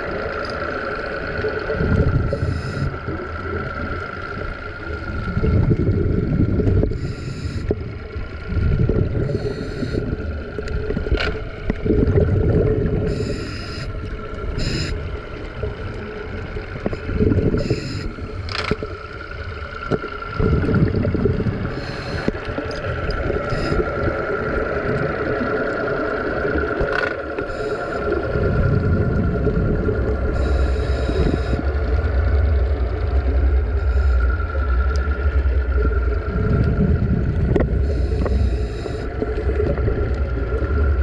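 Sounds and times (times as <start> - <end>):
exhaled bubbles rumbling: 0.0 - 41.0
steady thin tone: 13.1 - 15.1, 17.1 - 18.5
regulator hissing inhalations: 21.7 - 22.4.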